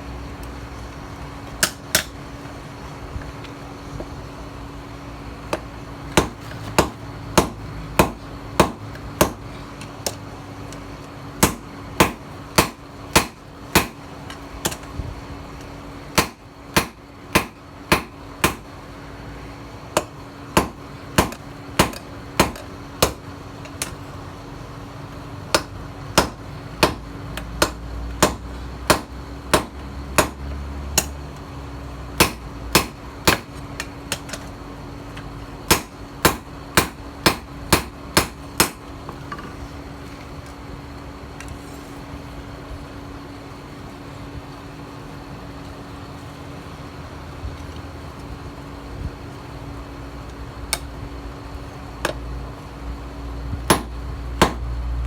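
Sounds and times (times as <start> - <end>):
steady low hum: 0.0 - 55.0
hammer striking steel on anvil: 11.4 - 14.0, 16.2 - 18.6, 27.6 - 30.4, 32.2 - 33.5, 35.7 - 38.8, 53.7 - 54.6.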